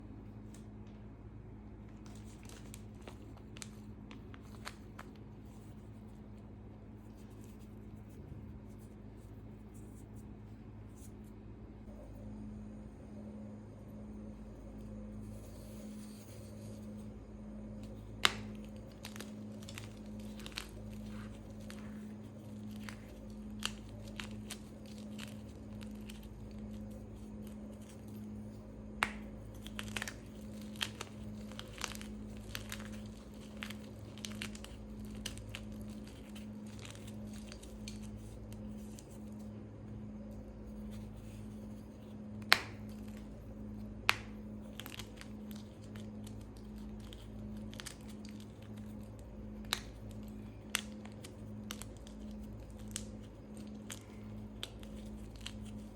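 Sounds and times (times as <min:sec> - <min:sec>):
steady low hum: 0:00.0 - 0:55.9
chalk pieces snapping: 0:02.0 - 0:06.0, 0:17.8 - 0:39.5, 0:40.6 - 0:55.9
chalk being crushed: 0:17.8 - 0:39.4, 0:40.6 - 0:55.9.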